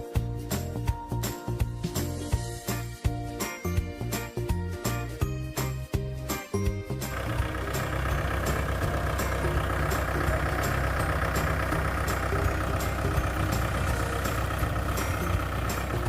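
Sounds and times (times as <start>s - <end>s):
engine running at low speed: 6.9s - 16.0s.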